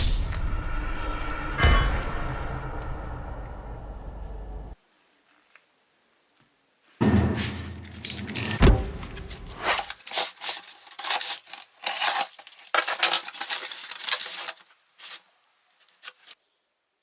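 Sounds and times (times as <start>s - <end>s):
low hum: 0.0s - 4.8s
packaging rustling and crinkling: 9.2s - 16.4s.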